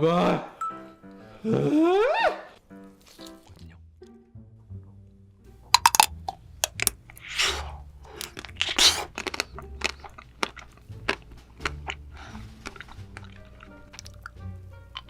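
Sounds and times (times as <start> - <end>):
rasping noises: 5.8 - 9.1
crunching bites of chocolate: 5.8 - 12.0
chewing: 5.8 - 14.4.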